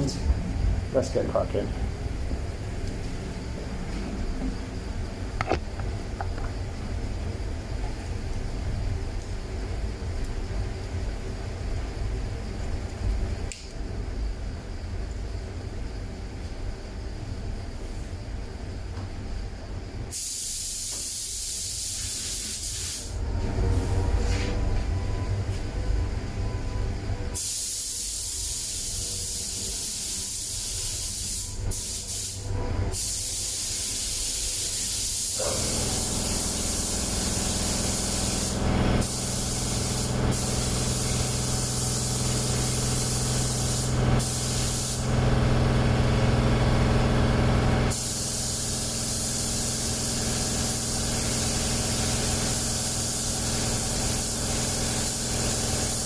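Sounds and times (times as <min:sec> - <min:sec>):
low machine hum: 0:00.0 - 0:20.1, 0:23.1 - 0:27.4
spray gun hissing: 0:20.1 - 0:23.2, 0:27.4 - 0:32.4, 0:33.0 - 0:45.1, 0:47.9 - 0:56.0.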